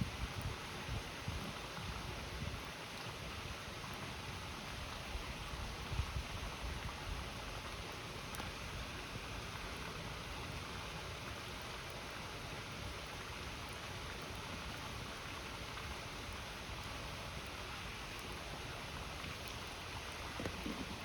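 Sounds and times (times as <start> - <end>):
faint campfire pops: 19.2 - 21.0.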